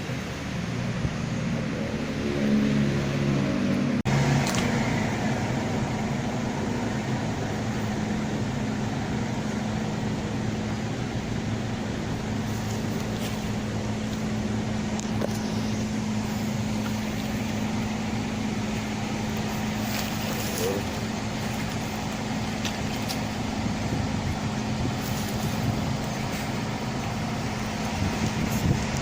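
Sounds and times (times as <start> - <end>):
bus diesel engine droning: 0.0 - 29.0
road noise: 0.0 - 29.0.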